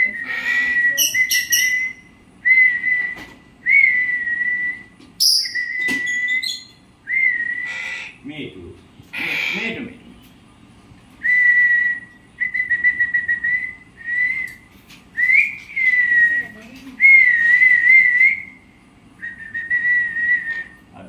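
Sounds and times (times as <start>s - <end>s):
parrot whistling: 0.0s - 8.2s, 19.2s - 20.8s.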